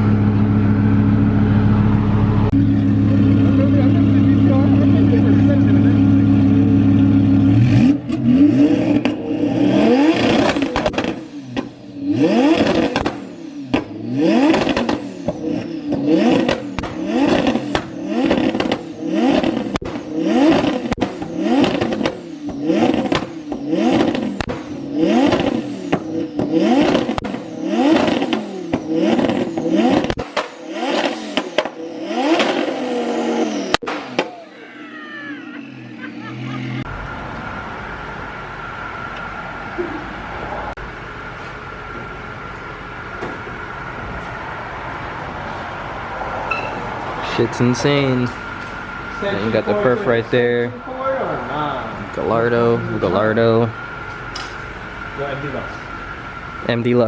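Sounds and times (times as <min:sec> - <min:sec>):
car engine revving: 0:00.0 - 0:57.0
engine crackle: 0:00.0 - 0:57.0.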